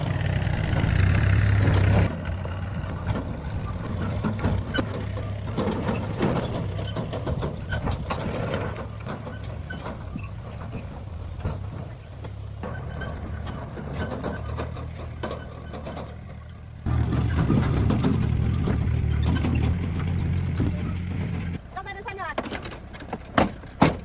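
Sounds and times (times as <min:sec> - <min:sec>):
clicks and knocks of work: 0:00.0 - 0:21.6, 0:22.3 - 0:24.0
engine running: 0:00.0 - 0:22.1.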